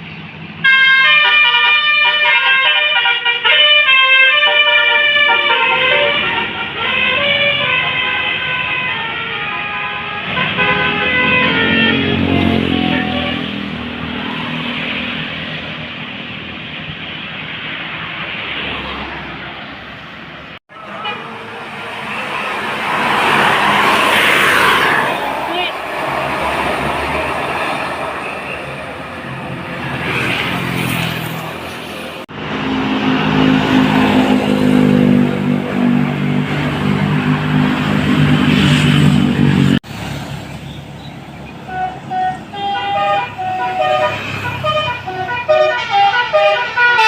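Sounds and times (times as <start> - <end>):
bus horn notes: 0.6 - 13.8, 20.8 - 22.6, 41.6 - 47.0
bus engine driving past: 10.4 - 46.2.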